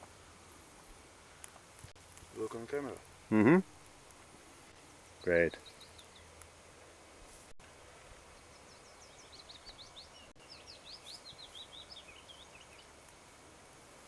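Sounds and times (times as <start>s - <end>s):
bird chirping: 5.2s - 6.4s, 8.3s - 12.9s.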